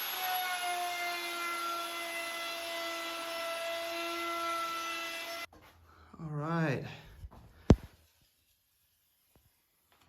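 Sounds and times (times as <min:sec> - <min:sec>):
electric wood router whining: 0:00.0 - 0:05.5.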